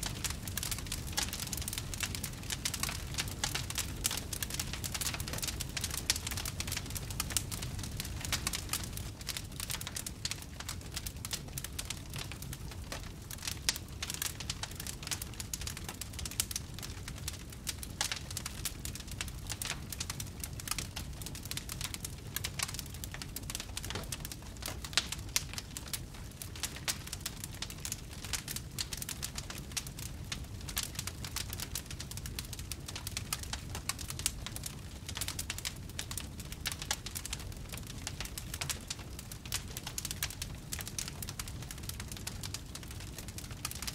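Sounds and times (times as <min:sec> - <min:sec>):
fireplace fire crackling: 0:00.0 - 0:43.9
low whoosh of flame: 0:00.0 - 0:43.9.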